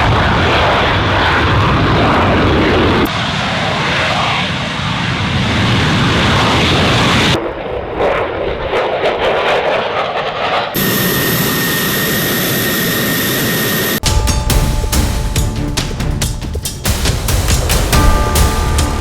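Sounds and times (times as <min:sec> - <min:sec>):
jet engine rush and rumble: 0:00.0 - 0:14.1
high whine: 0:10.8 - 0:19.0
music with sharp beats: 0:14.0 - 0:19.0.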